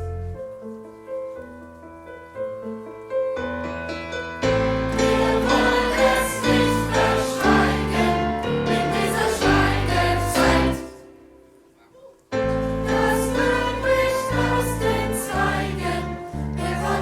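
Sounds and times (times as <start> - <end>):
choir of young voices singing: 4.5 - 11.6, 12.5 - 17.0.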